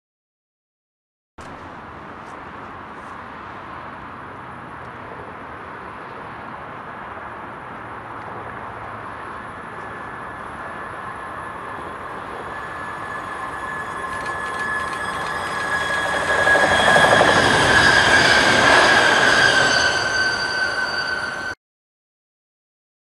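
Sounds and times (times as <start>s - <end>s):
train rushing noise: 5.5s - 21.6s
high ringing tone from rails: 8.5s - 21.6s.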